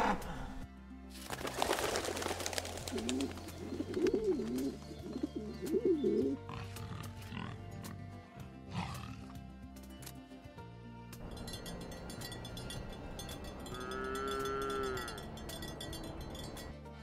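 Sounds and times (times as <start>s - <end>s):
background music: 0.0s - 17.0s
pigeon wing claps: 1.2s - 4.7s
pigeons cooing: 2.8s - 7.8s.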